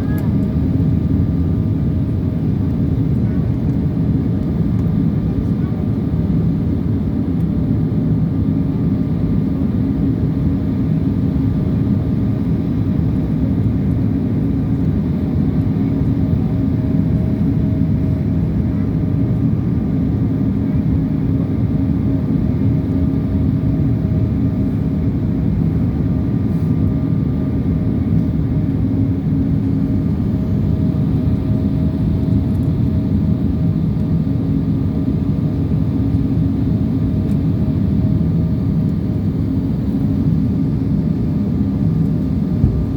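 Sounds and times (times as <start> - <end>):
airliner cabin rumble: 0.0 - 42.9.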